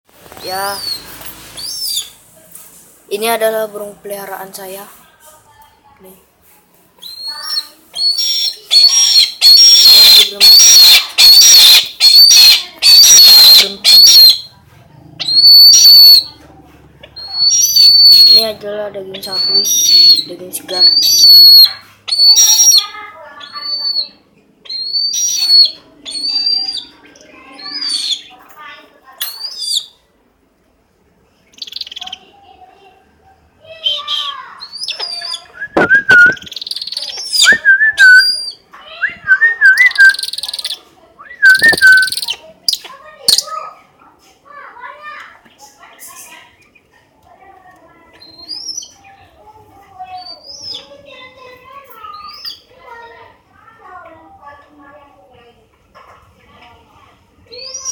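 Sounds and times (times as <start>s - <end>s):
high bird chirps: 0.4s - 2.2s, 7.0s - 14.5s, 15.2s - 16.4s, 17.1s - 28.4s, 29.2s - 30.0s, 31.4s - 32.3s, 33.9s - 43.6s, 48.2s - 49.3s, 50.1s - 51.0s, 52.0s - 52.7s, 57.5s - 57.9s
high wavering bird whistles: 0.7s - 2.2s, 7.0s - 14.5s, 17.2s - 18.5s, 19.2s - 26.9s, 34.2s - 43.5s
eagle screaming: 8.0s - 14.5s.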